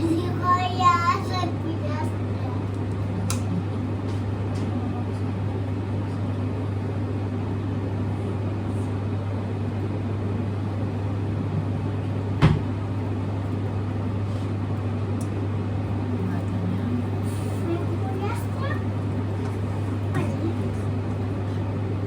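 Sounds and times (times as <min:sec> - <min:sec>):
appliance motor humming: 0:10.6 - 0:22.0.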